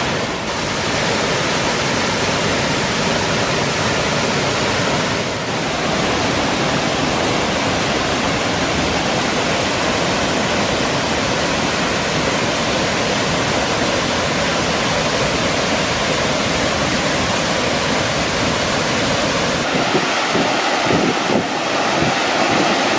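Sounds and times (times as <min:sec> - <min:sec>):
waterfall rushing: 0:00.0 - 0:22.9
wind buffeting microphone: 0:19.6 - 0:22.9.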